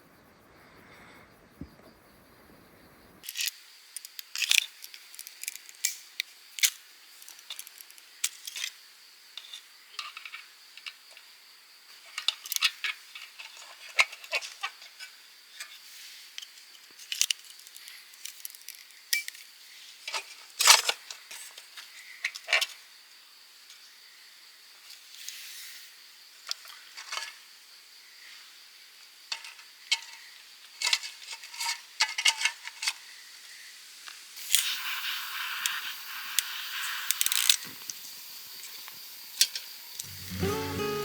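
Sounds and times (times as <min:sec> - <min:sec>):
insects chirring: 0:00.0 - 0:20.0, 0:34.4 - 0:41.0
small hard objects clattering: 0:03.2 - 0:06.0.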